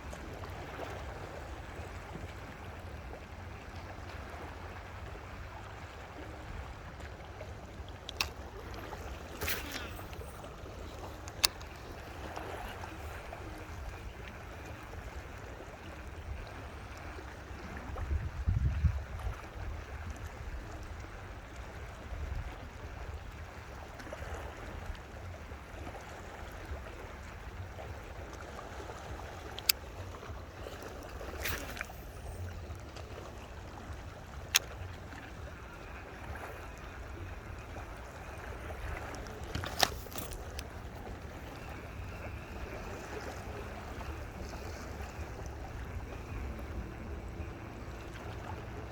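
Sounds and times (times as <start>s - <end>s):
low rumble beside water: 0.0s - 48.9s.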